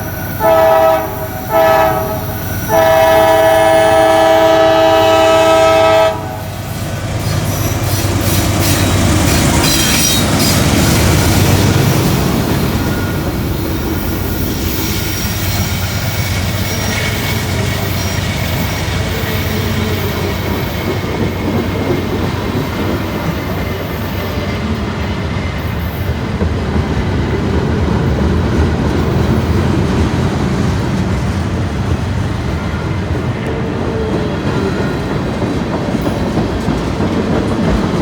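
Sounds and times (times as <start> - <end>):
freight train cars rumbling: 0.0 - 38.0
faint wheel squeal: 14.4 - 20.5.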